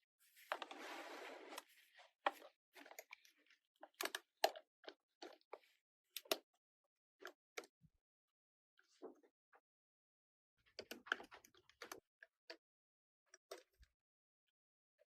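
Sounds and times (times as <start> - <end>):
plastic tools tapping and clicking: 2.3 - 6.5.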